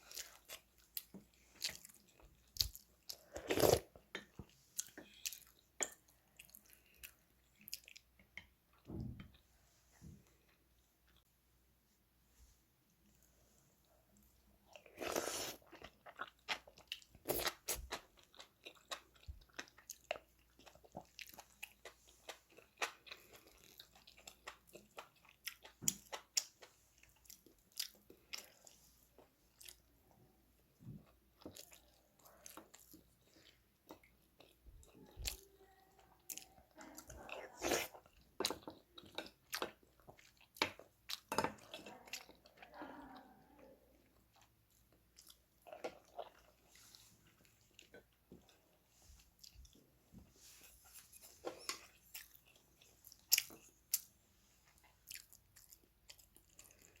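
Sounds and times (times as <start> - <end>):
person chewing and biting: 50.9 - 54.1, 54.7 - 57.0.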